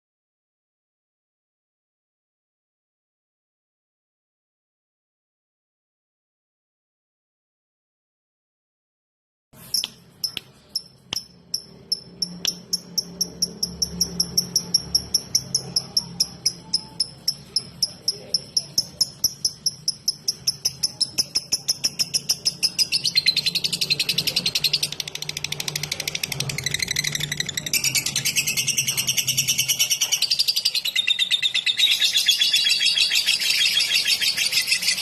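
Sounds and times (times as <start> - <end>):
bird ticking chirps: 9.6 - 34.3
bird chattering warble: 9.7 - 35.0.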